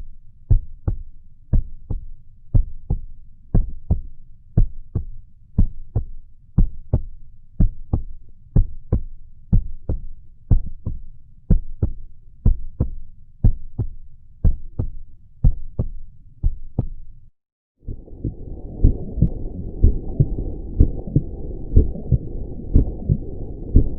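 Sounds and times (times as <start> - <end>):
heartbeat: 0.5 - 17.1, 17.8 - 23.9
rushing noise: 17.8 - 23.9.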